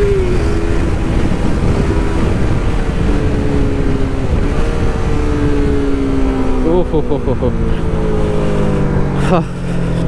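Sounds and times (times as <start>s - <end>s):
wind noise on microphone: 0.0s - 6.6s
motorcycle engine at high revs: 0.0s - 10.0s.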